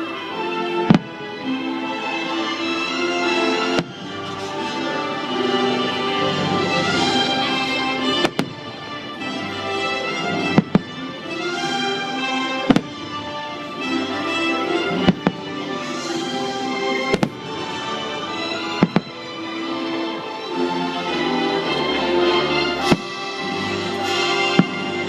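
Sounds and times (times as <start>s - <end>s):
orchestral music: 0.0s - 25.0s
fireworks bangs: 0.8s - 1.3s, 3.5s - 5.2s, 5.8s - 19.5s, 22.8s - 25.0s.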